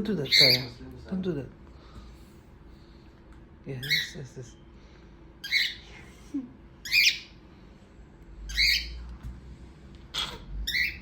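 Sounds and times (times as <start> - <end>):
parrot squawking: 0.2 - 0.8, 3.8 - 4.2, 5.4 - 5.9, 6.8 - 7.4, 8.5 - 9.0, 10.1 - 11.0.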